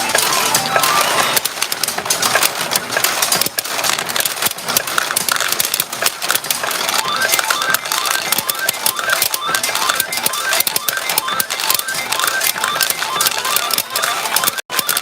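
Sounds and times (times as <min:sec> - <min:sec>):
steel balls clattering: 0:00.0 - 0:15.0
electronic beeps: 0:06.9 - 0:15.0.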